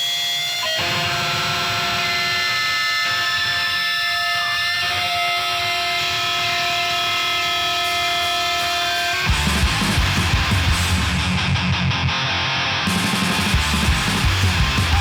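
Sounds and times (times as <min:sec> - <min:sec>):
electric guitar amplifier feedback: 0:00.0 - 0:15.0.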